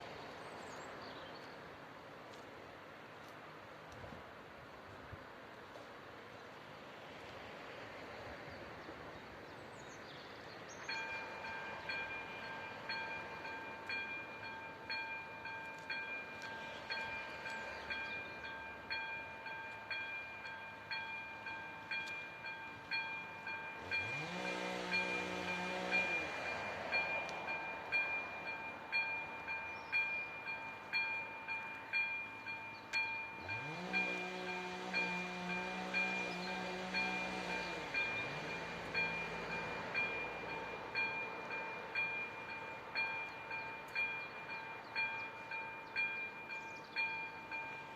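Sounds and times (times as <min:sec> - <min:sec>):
railroad crossing bell dinging: 0:10.8 - 0:47.9.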